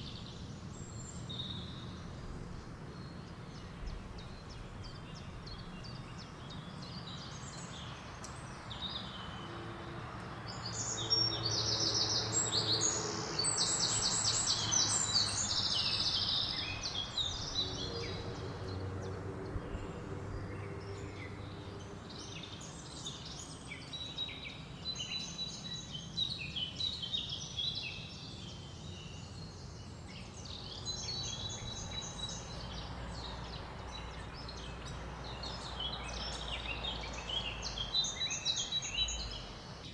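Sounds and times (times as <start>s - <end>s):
wind in leaves: 0.0s - 39.9s
birds chirping and trilling: 10.6s - 26.2s.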